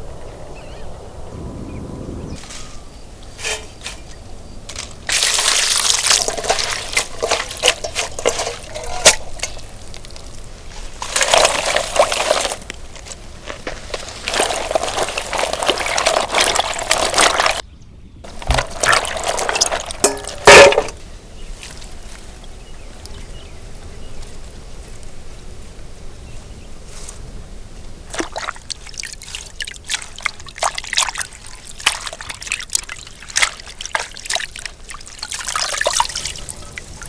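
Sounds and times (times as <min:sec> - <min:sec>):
water pouring: 0:03.4 - 0:17.6, 0:18.3 - 0:21.0, 0:28.1 - 0:37.0.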